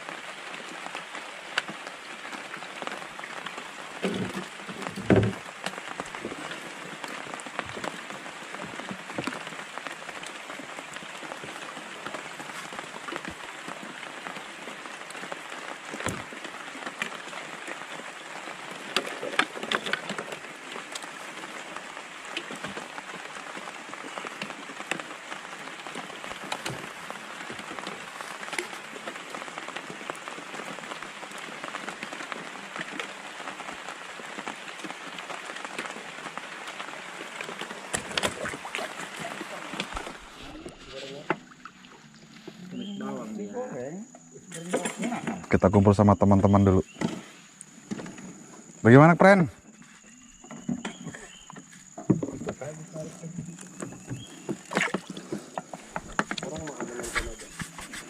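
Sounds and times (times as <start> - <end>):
rain pattering: 0.0 - 58.0.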